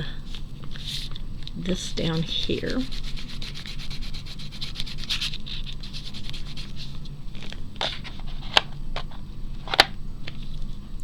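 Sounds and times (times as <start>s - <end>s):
crayon scribbling on paper: 2.1s - 6.9s.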